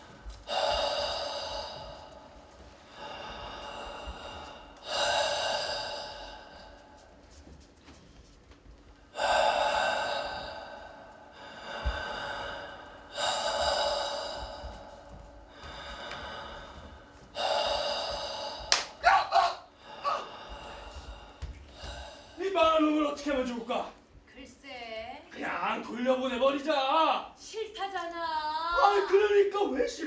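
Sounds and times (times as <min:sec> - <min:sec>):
person gasping for breath: 0:00.2 - 0:07.0, 0:09.1 - 0:22.4.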